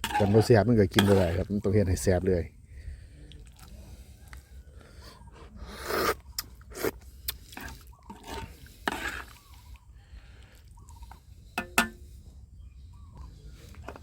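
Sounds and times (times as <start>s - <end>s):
utensil scraping a cooking pot: 0.0s - 2.0s, 6.8s - 9.6s, 11.0s - 12.1s.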